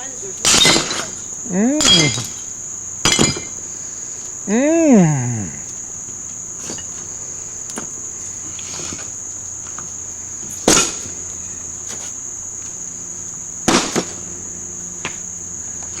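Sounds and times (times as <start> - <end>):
crickets chirring: 0.0 - 16.0
sledgehammer smashing porcelain: 0.5 - 1.2, 1.8 - 2.4, 3.0 - 3.6.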